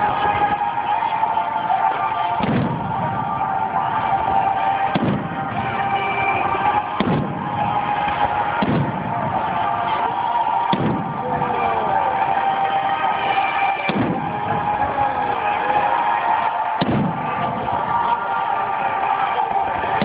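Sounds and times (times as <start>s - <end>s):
music playing: 0.0s - 20.0s
fireworks bursting with booms: 2.4s - 3.4s, 4.9s - 5.7s, 7.0s - 9.7s, 10.7s - 11.3s, 13.9s - 14.7s, 16.8s - 17.6s.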